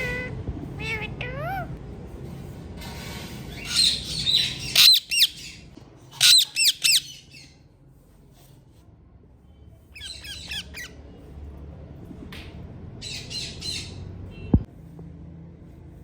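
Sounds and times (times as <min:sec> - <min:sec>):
parakeets squawking: 0:00.0 - 0:01.8, 0:03.5 - 0:07.6, 0:10.0 - 0:11.0, 0:13.0 - 0:14.1.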